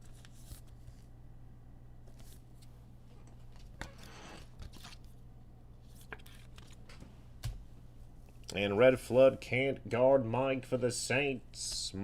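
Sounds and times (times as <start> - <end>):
low steady hum: 0.0 - 12.0
trading cards clicking and rustling: 5.9 - 7.6.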